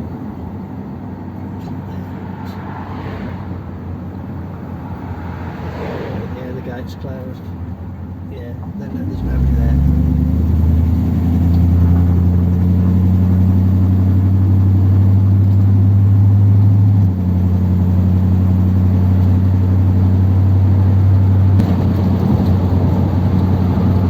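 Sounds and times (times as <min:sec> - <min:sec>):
car engine revving while driving: 0:08.8 - 0:24.0.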